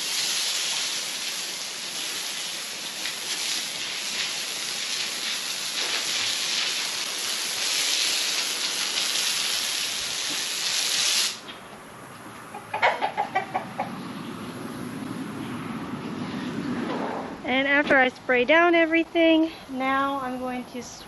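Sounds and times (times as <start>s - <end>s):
hose nozzle spraying water: 0.0s - 11.4s
poultry clucking: 12.3s - 14.4s.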